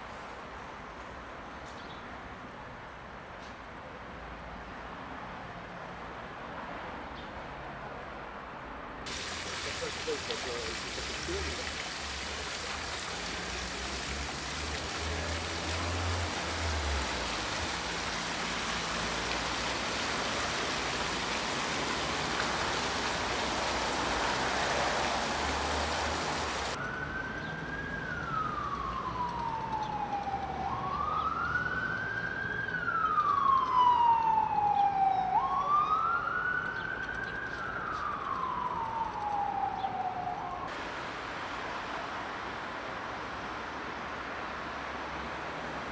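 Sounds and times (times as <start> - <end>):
rushing street noise: 0.0 - 45.9
emergency vehicle siren wailing: 15.2 - 40.7.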